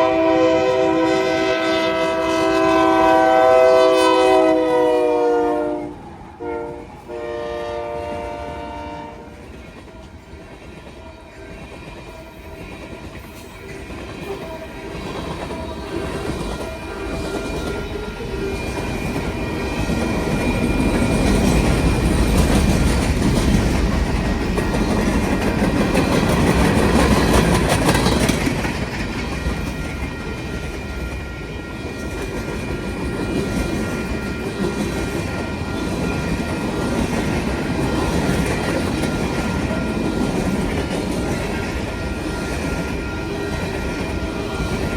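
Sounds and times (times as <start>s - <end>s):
locomotive horn blasts: 0.0s - 9.4s
train wheels clattering on rails: 6.8s - 44.9s
high ringing tones: 13.4s - 22.1s, 29.5s - 44.9s.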